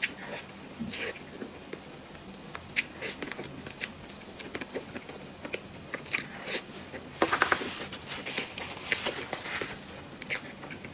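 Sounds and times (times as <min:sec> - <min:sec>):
chewing soft dessert: 0:00.0 - 0:10.9
paper crinkling: 0:07.2 - 0:10.5.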